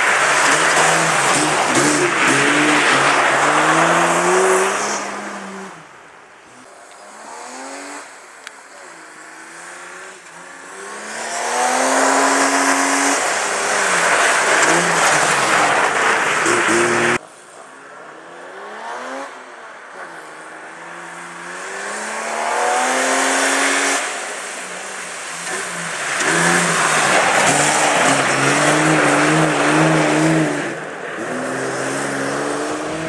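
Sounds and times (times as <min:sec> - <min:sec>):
car engine revving hard: 0:00.0 - 0:05.8, 0:09.2 - 0:17.2, 0:21.4 - 0:33.0.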